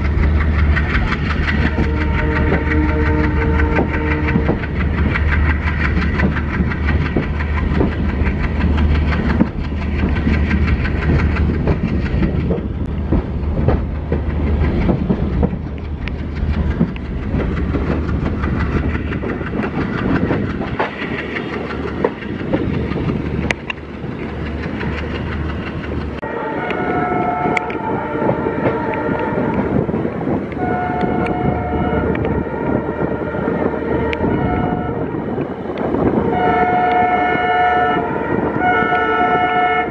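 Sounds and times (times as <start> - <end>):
wheels clicking over rail joints: 0.0 - 26.8
train coaches rumbling on track: 0.0 - 39.9.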